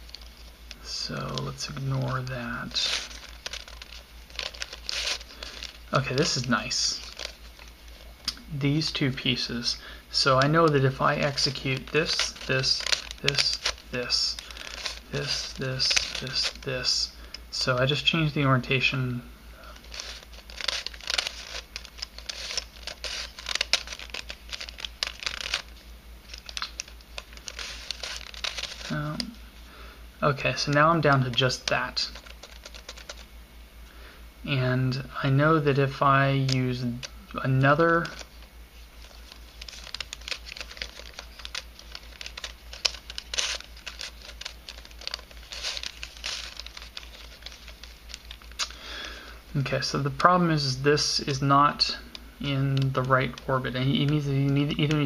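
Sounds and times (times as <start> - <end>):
puzzle pieces scraping and clicking: 1.3 - 8.0, 10.2 - 17.4, 19.7 - 29.3, 30.6 - 33.2, 39.0 - 48.7.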